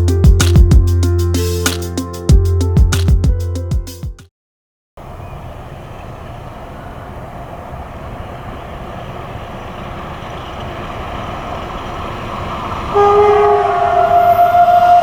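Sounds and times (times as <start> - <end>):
music track: 0.0 - 4.2
train rumbling: 5.0 - 15.0.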